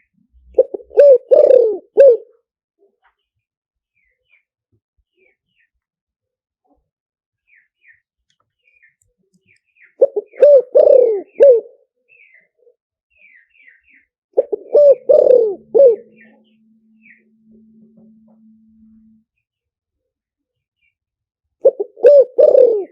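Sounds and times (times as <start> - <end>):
dove cooing: 0.6 - 2.3, 10.0 - 11.8, 14.4 - 17.2, 21.6 - 22.9
small birds chirping: 3.0 - 5.8, 7.4 - 19.2.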